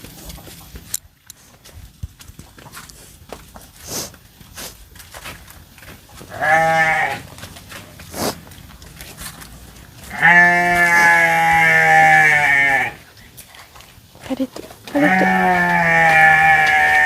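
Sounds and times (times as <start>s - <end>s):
farm animal bleating: 6.2s - 8.5s, 9.8s - 13.2s, 14.8s - 17.0s.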